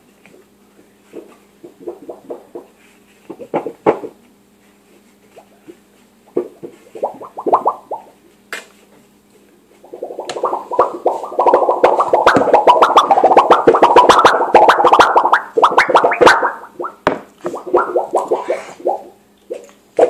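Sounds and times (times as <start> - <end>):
hollow popping plops from shaking: 1.1 - 4.2, 6.3 - 8.2, 9.8 - 19.8.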